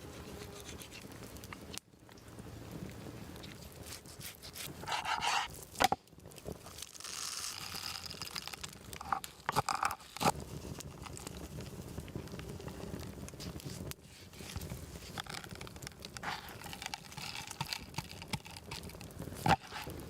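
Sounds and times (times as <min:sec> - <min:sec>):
rustling crinkling handling noises: 0:13.3 - 0:20.0.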